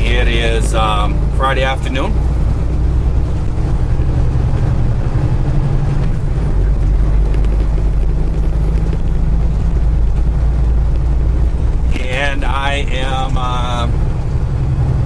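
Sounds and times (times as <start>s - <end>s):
road noise: 0.0s - 15.0s
truck diesel engine driving: 0.0s - 15.0s.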